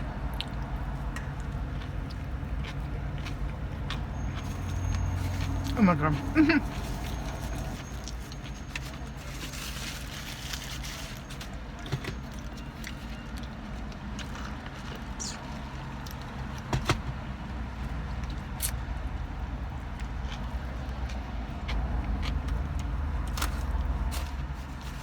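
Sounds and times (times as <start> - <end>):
person chewing food: 0.2 - 9.0, 19.7 - 23.9.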